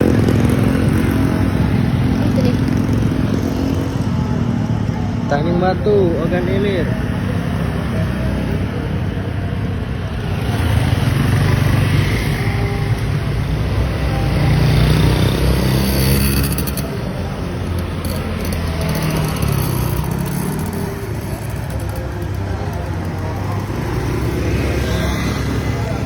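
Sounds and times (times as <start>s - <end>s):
motorcycle engine: 0.0s - 26.0s
wind and road noise: 0.0s - 26.0s.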